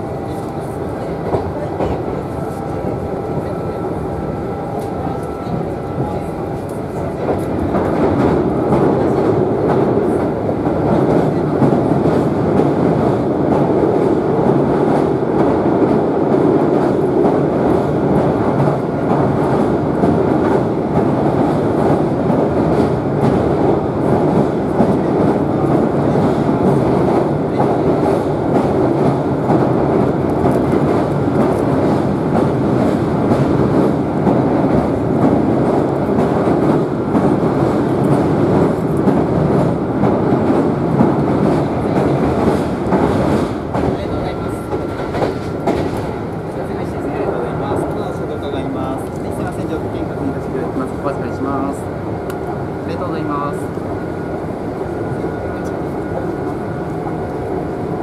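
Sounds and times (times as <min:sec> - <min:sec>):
rumble of train wheels on rail: 0:00.0 - 0:58.0.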